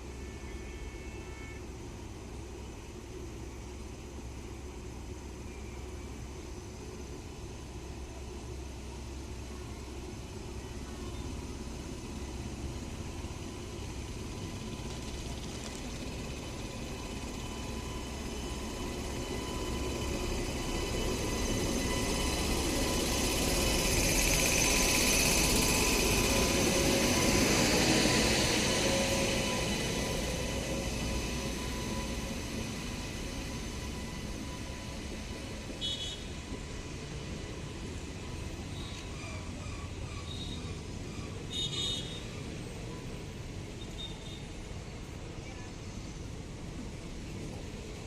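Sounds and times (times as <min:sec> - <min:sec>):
electric train rushing: 0:11.3 - 0:43.7.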